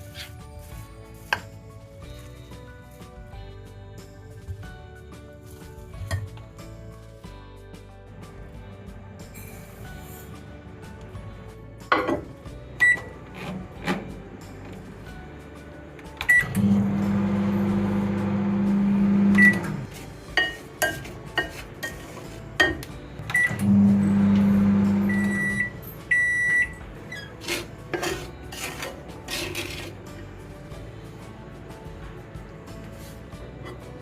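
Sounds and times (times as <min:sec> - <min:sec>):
microwave oven humming: 0:16.2 - 0:19.9, 0:23.3 - 0:26.8.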